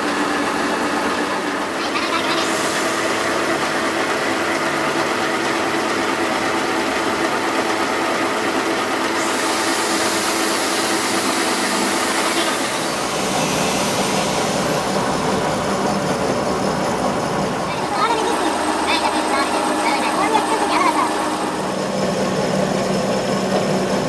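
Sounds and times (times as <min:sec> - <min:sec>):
machine motor running: 0:00.0 - 0:24.0
high hiss: 0:01.7 - 0:05.1, 0:08.8 - 0:22.0.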